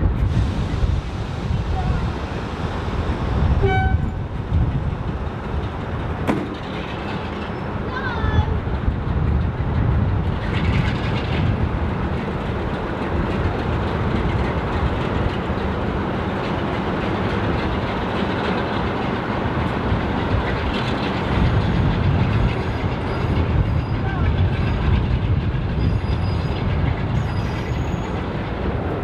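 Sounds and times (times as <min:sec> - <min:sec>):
steam train rumbling: 0:00.0 - 0:29.0.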